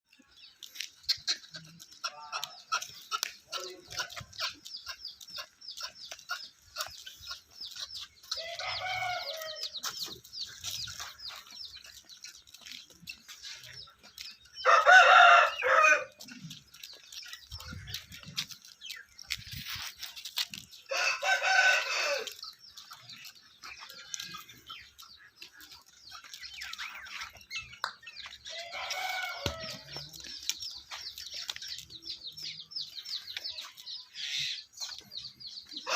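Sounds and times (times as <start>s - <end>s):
chickens clucking: 0.1s - 35.9s
small birds chirping: 0.1s - 35.9s
rooster crowing: 8.4s - 9.6s, 14.6s - 16.1s, 20.9s - 22.3s.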